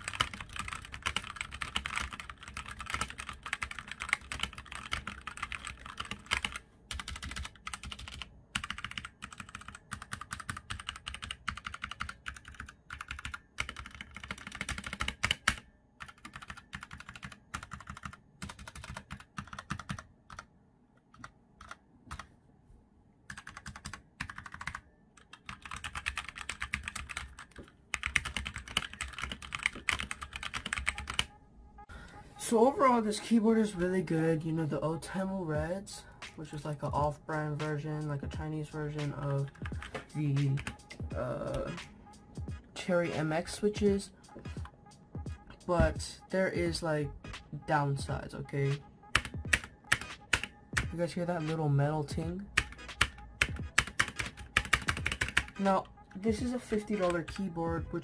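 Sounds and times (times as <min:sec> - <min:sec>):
mechanical keyboard typing: 0:00.0 - 0:20.5, 0:21.1 - 0:22.3, 0:23.3 - 0:31.3, 0:39.0 - 0:40.8, 0:49.1 - 0:51.0, 0:52.6 - 0:58.0.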